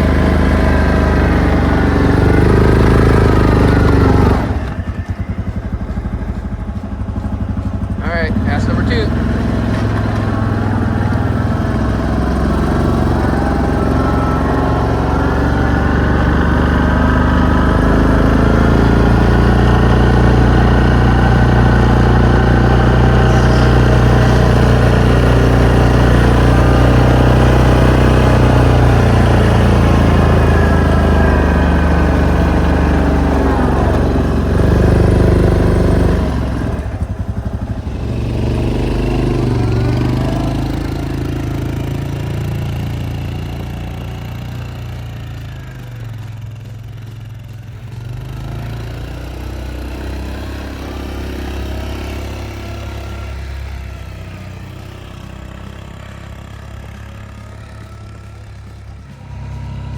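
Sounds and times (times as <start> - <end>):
vehicle engine running under load: 0.0 - 59.9.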